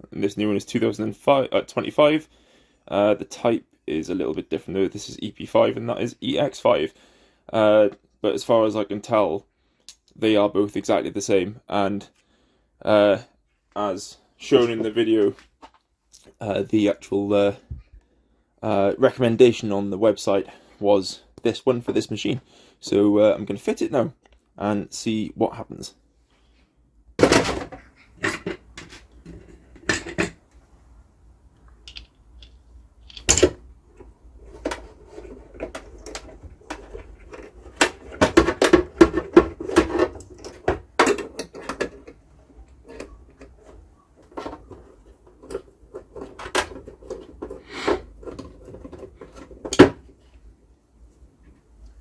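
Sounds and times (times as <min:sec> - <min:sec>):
metal and plastic parts rattling: 0:31.8 - 0:50.2.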